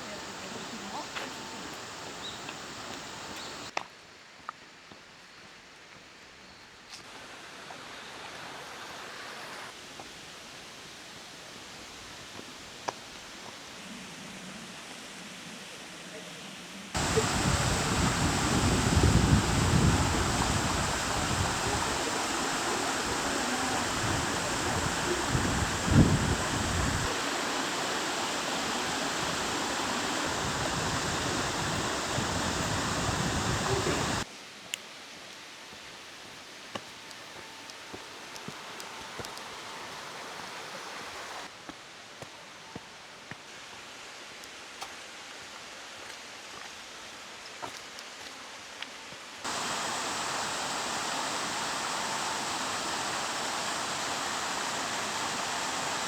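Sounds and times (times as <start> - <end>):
waterfall rushing: 0.0 - 3.7, 17.0 - 34.3, 49.5 - 56.0
wind buffeting microphone: 17.0 - 27.2, 29.0 - 34.2.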